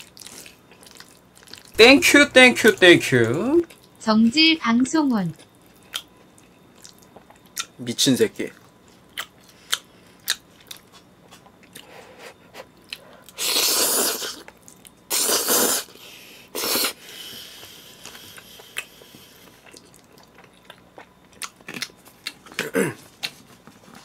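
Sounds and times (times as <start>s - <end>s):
loud hissing noodle slurps: 13.4s - 14.4s, 15.1s - 18.4s.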